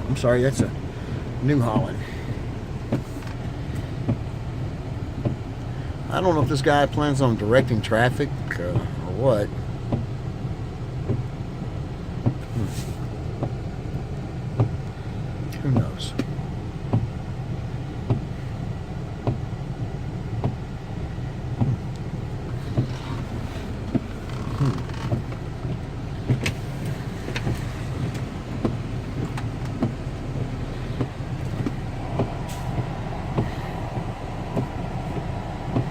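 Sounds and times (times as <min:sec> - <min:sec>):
low steady rumble: 0:00.0 - 0:35.9
heavy rain: 0:21.1 - 0:35.9
drips tapping: 0:21.6 - 0:35.9.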